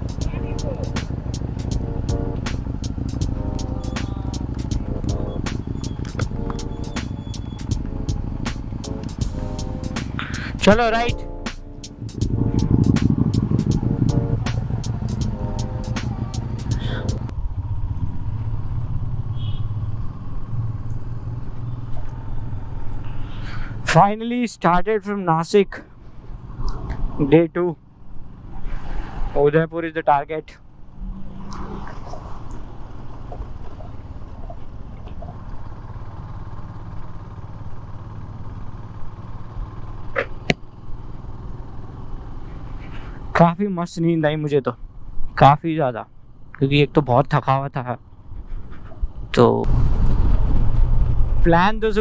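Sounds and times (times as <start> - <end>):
background music: 0.0 - 17.3
motorcycle engine rumbling: 0.0 - 24.4, 25.7 - 52.0.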